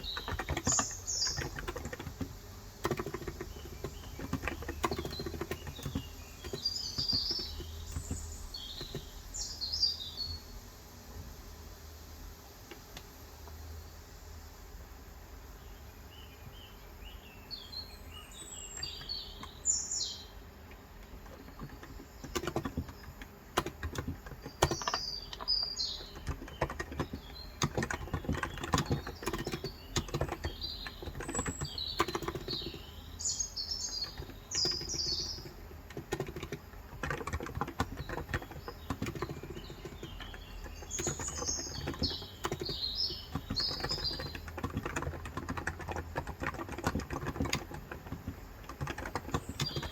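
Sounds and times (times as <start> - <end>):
keyboard typing: 0.0 - 9.2, 20.7 - 49.9
small birds chirping: 0.0 - 11.0, 11.7 - 49.9.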